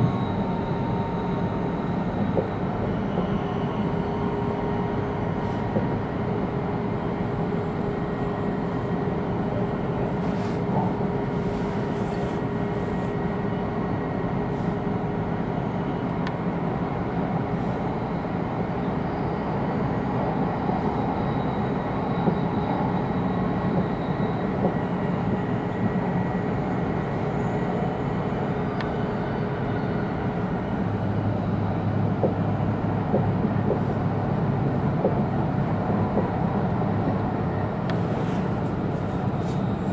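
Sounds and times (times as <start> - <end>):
train interior rush and rumble: 0.0 - 39.9.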